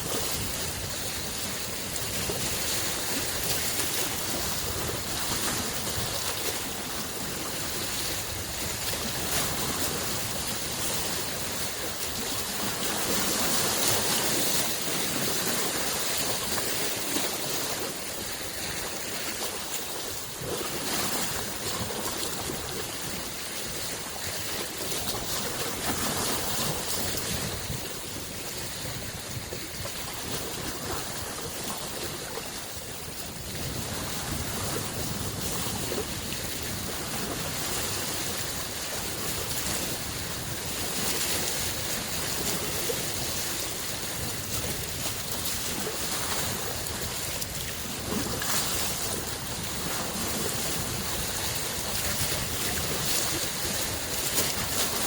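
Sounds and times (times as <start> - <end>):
lake waves washing in: 0.0 - 55.0.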